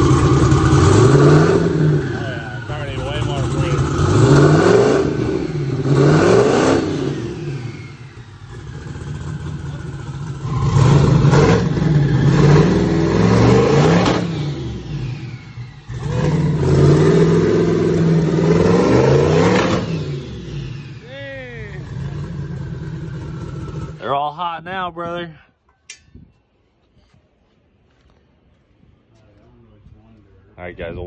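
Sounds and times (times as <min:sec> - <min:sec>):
engine revving: 0:00.0 - 0:24.1.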